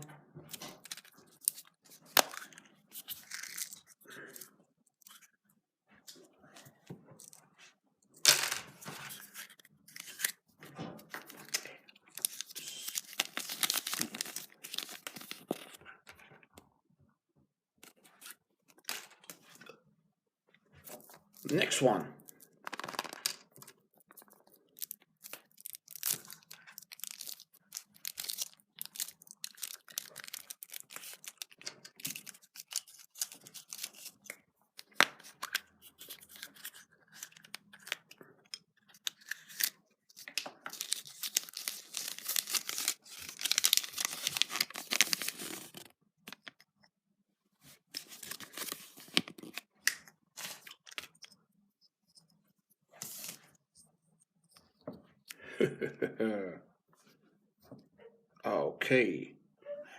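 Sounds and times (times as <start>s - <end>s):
foil wrapper crinkling: 11.5s - 15.7s, 24.7s - 34.3s, 39.2s - 45.9s.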